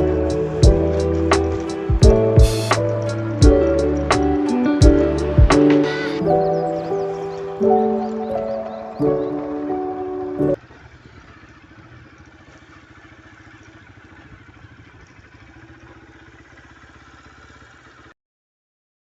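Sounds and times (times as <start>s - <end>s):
music: 0.0s - 10.6s
motorcycle engine idling: 0.0s - 18.2s.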